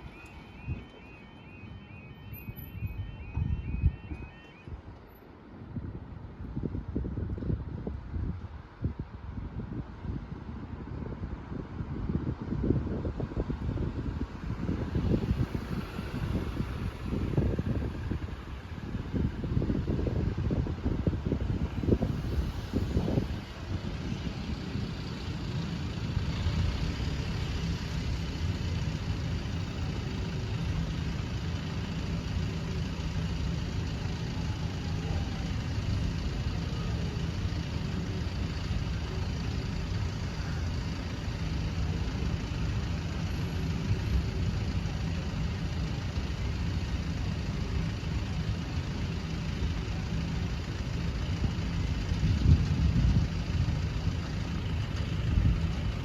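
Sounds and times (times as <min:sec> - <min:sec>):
engine idling: 0:14.6 - 0:56.0.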